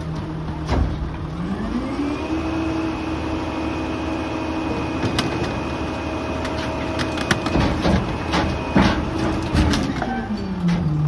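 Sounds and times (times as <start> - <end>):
garbage truck engine hum: 0.0 - 11.0
debris knocking and cracking: 7.0 - 10.8.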